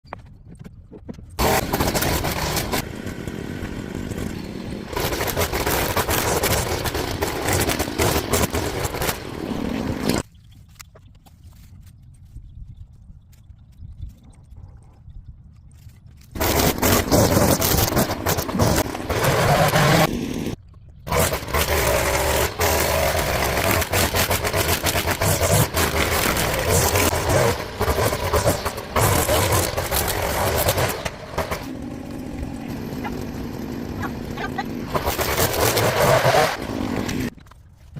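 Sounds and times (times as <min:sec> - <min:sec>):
lawn mower engine running: 0:01.4 - 0:10.2, 0:16.4 - 0:37.3.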